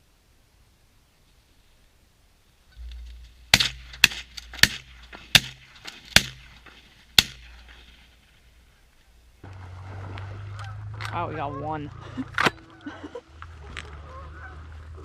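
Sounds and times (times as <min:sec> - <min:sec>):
shotgun shots: 0:03.1 - 0:08.0.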